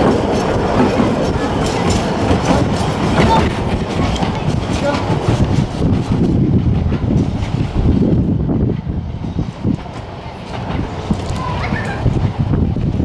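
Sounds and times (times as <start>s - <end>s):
train rumbling: 0.0s - 13.0s
wind buffeting microphone: 0.0s - 13.0s.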